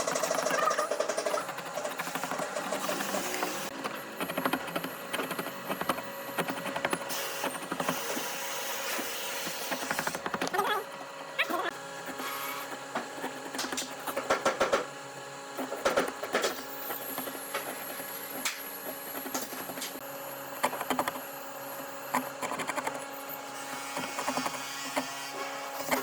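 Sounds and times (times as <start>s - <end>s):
rapid clicking and clatter: 0.0s - 8.0s, 15.6s - 20.0s.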